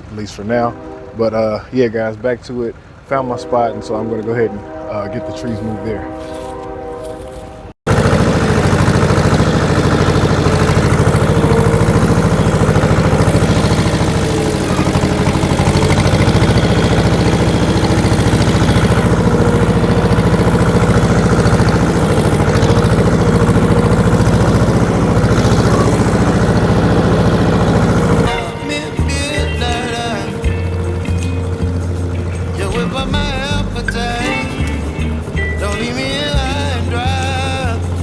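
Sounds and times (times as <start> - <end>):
vehicle engine running loudly: 7.9 - 38.0.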